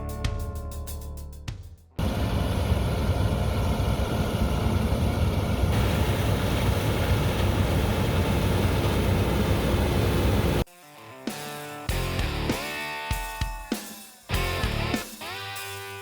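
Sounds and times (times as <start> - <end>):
combine harvester running: 2.0 - 10.7.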